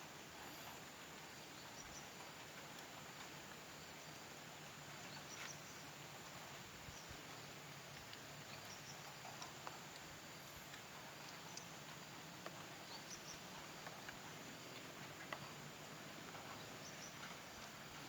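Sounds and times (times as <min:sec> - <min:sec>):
small ticks: 0:05.1 - 0:18.0.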